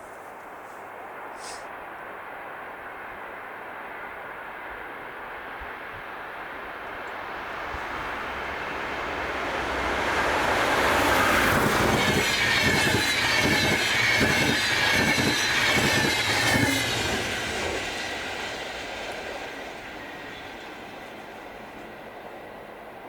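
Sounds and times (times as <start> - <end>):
train wheels clacking over rail joints: 10.6 - 21.5
high wheel squeal: 11.1 - 18.6.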